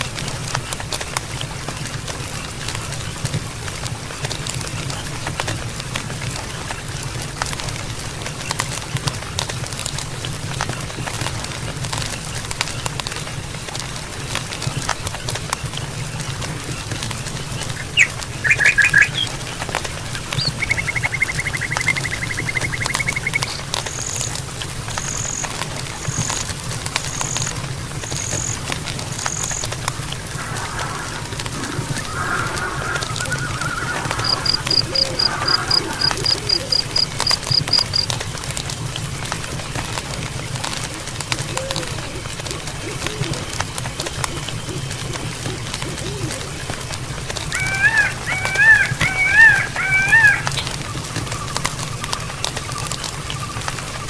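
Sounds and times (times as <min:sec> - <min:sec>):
fire low rumble: 0:00.0 - 0:47.6
campfire crackling: 0:00.0 - 0:54.0
songbirds calling: 0:13.9 - 0:39.0, 0:39.6 - 0:54.0.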